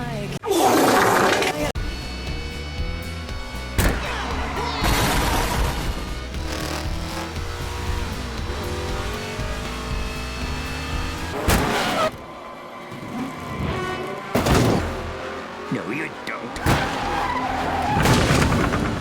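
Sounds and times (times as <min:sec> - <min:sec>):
rock music: 0:01.8 - 0:11.4
race cars rushing past: 0:04.0 - 0:18.0.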